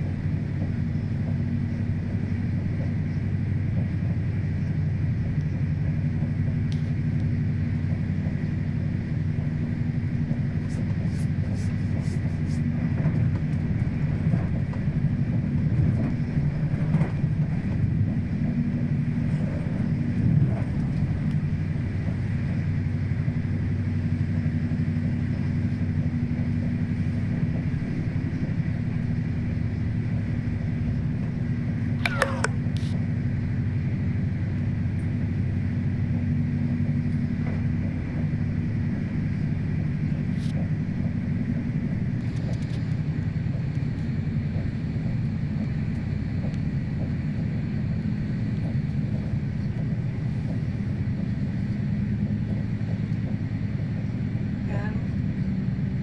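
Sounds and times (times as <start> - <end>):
train rumble and hum: 0.0 - 56.0
sharp click: 32.0 - 32.9.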